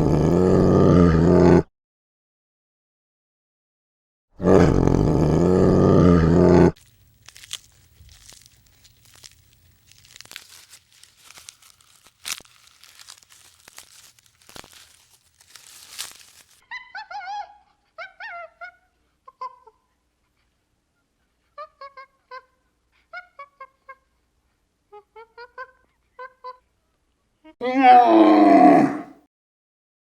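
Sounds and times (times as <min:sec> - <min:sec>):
crunching and rustling: 0:06.8 - 0:16.6
loud animal call: 0:27.6 - 0:29.2.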